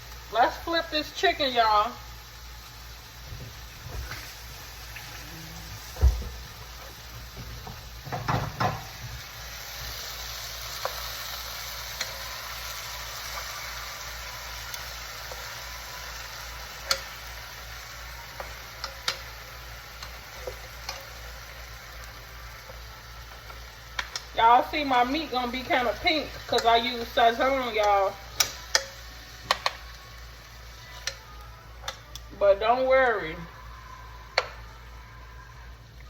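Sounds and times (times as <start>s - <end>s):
chicken sizzling in a pan: 0.0s - 36.0s
pieces knocking against pan: 7.4s - 9.1s.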